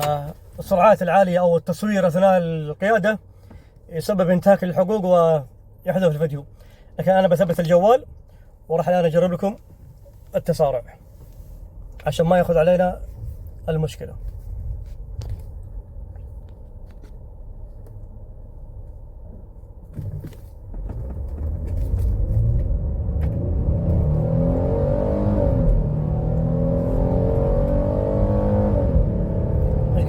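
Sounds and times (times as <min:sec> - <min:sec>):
road noise inside car: 0:00.0 - 0:30.0
car engine revving under load: 0:19.3 - 0:30.0.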